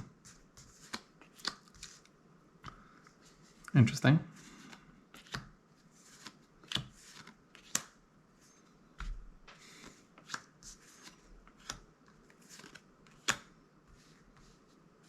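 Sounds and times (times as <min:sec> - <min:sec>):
soft rustle of cards: 0:00.0 - 0:15.0
cards snapping against cards: 0:04.7 - 0:05.5, 0:06.2 - 0:08.0, 0:12.5 - 0:13.5.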